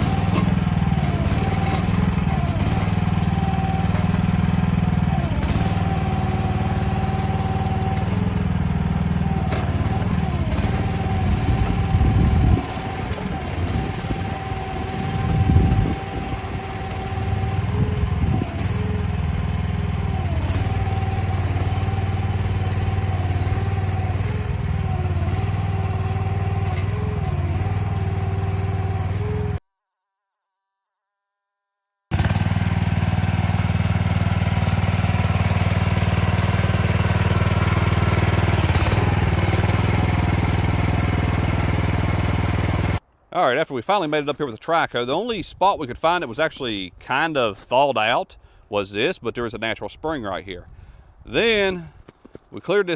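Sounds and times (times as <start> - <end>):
excavator engine whining: 0.0 - 29.6, 32.1 - 43.2.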